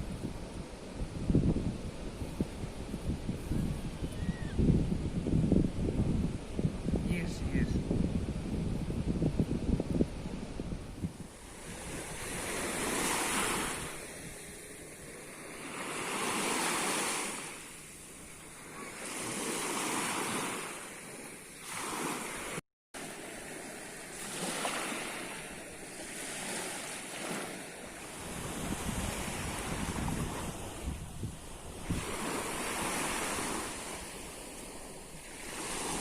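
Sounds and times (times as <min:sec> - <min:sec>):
sea waves washing onto shore: 0:11.2 - 0:36.0.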